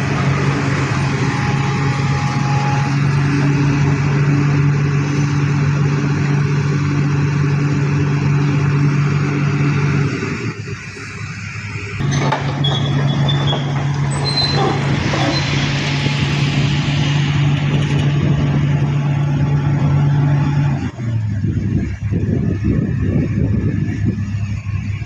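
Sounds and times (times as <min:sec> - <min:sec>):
heavy diesel engine running: 0:00.0 - 0:25.0
high-pitched squeals: 0:11.3 - 0:18.1.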